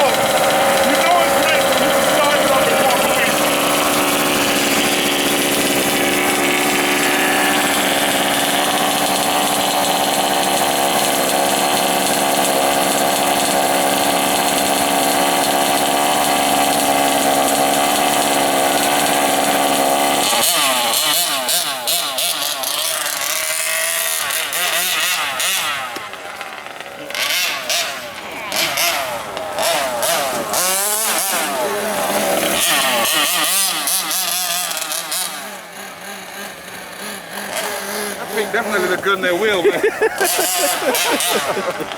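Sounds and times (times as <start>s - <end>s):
truck engine idling and revving: 0.0s - 41.9s.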